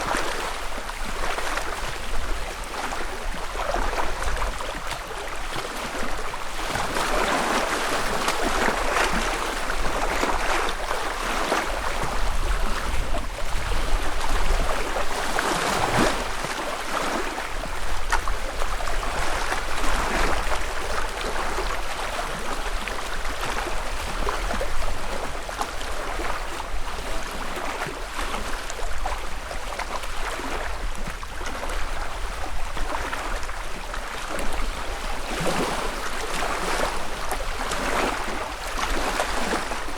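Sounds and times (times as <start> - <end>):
lake waves lapping at shore: 0.0 - 39.9.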